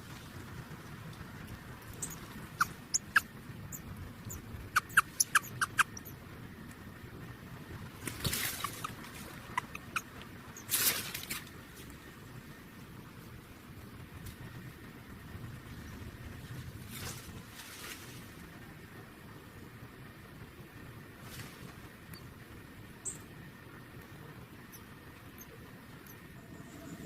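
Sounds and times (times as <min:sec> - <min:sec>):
baby birds peeping: 0:01.8 - 0:06.2, 0:08.0 - 0:10.8.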